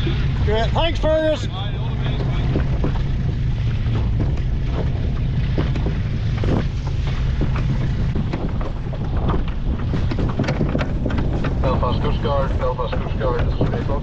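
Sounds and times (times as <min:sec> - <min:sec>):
low steady drone: 0:00.0 - 0:14.0
water noise: 0:00.0 - 0:14.0
wind buffeting microphone: 0:00.0 - 0:14.0.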